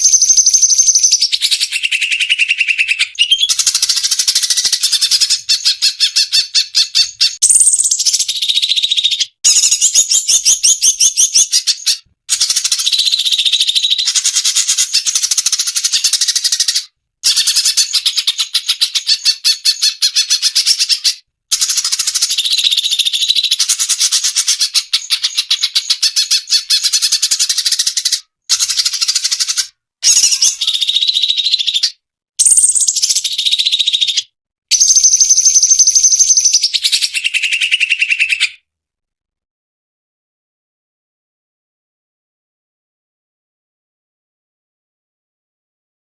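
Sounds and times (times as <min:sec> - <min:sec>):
bird chattering trills: 0:00.0 - 0:38.6.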